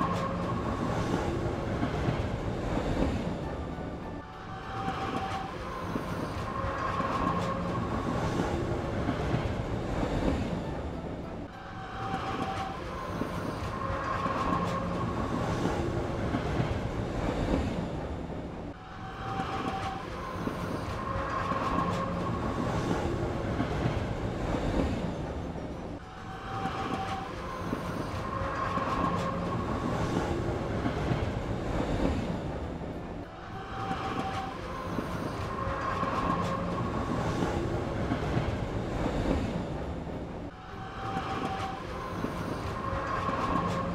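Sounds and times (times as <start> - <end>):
train rolling clatter: 0.0 - 43.9.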